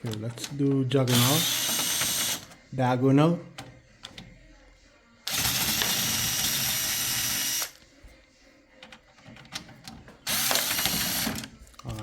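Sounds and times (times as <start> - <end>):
electric screwdriver running: 1.1 - 2.5, 5.3 - 7.8, 10.3 - 11.4.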